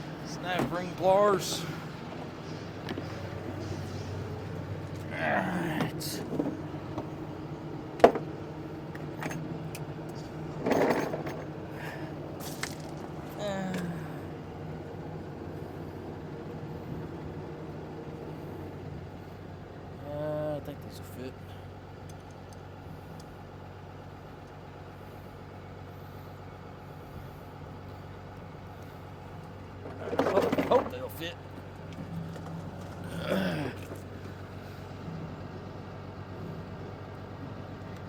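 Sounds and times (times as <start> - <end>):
engine humming: 0.0 - 38.0
metal tools clattering: 9.0 - 13.8, 29.9 - 33.1.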